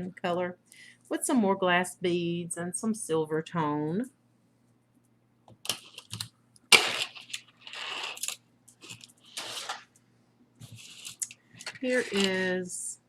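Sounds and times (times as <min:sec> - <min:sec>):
packaging rustling: 0:05.7 - 0:09.9, 0:10.6 - 0:12.5.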